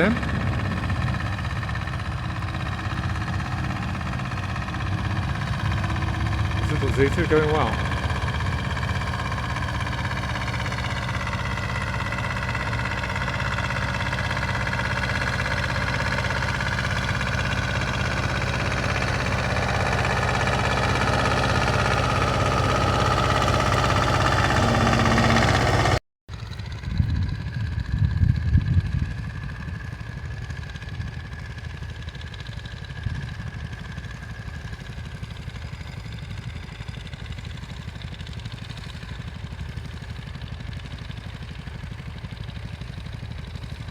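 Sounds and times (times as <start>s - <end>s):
quieter engine sound: 0.0s - 43.9s
tractor diesel engine running: 0.0s - 43.9s.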